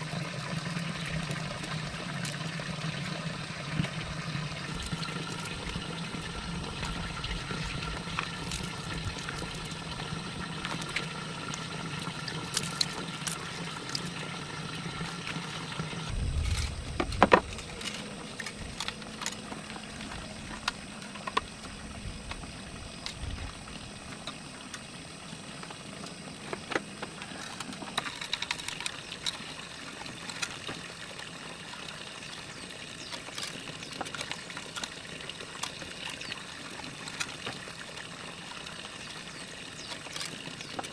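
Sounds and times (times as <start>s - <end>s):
water pouring and trickling: 0.0s - 40.9s
steady hum: 16.0s - 24.0s.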